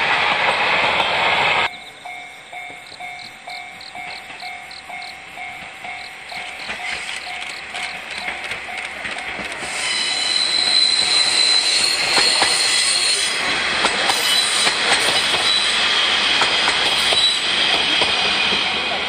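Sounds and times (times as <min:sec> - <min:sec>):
diesel train passing: 0:00.0 - 0:19.0
wheels squealing: 0:01.7 - 0:13.5
wheels clicking over rail joints: 0:02.0 - 0:09.9.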